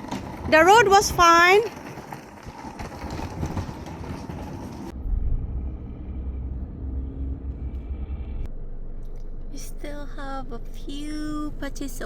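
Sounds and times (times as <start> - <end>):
low rumble: 4.1 - 12.0
road and engine noise inside car: 4.9 - 12.0.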